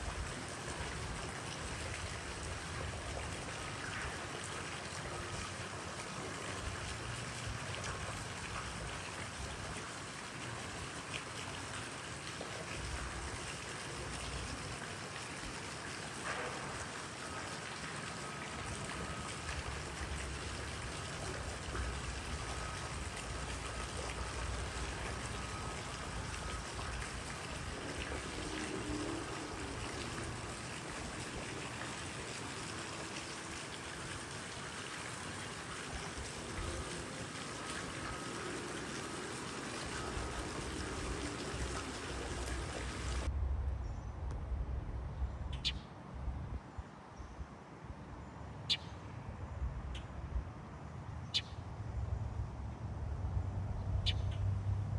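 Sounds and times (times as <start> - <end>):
flowing water: 0.0 - 43.3
low rumble: 43.3 - 45.5.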